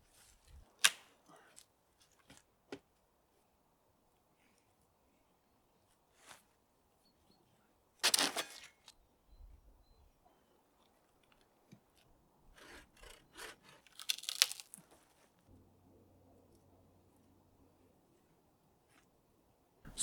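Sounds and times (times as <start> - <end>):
scraping and rustling of branches: 12.6 - 15.4.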